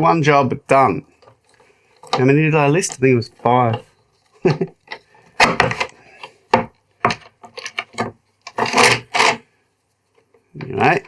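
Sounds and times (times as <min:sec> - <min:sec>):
wooden knocks and clatter: 0:01.1 - 0:09.4.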